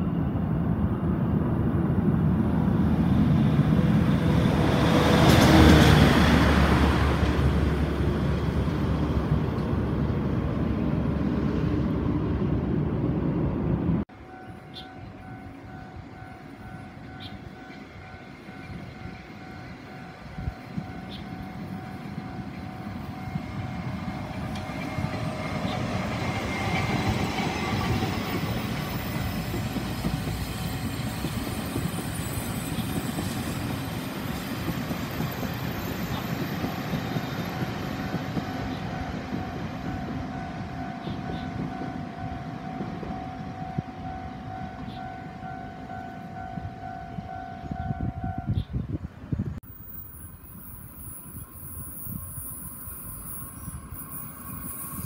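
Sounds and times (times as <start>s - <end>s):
train passing rumble: 0.0s - 55.0s
level-crossing warning bell: 14.1s - 31.0s, 37.5s - 48.5s.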